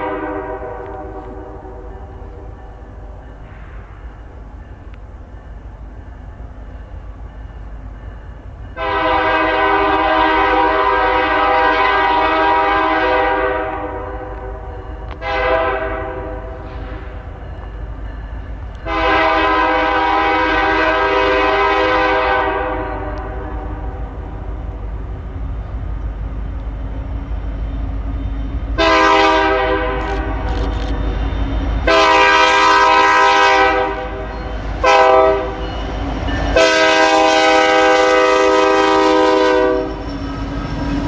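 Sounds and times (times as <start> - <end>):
locomotive air horn blasts: 0.0 - 2.5, 8.8 - 17.1, 18.8 - 24.3, 28.8 - 31.0, 31.8 - 35.6, 36.5 - 40.1.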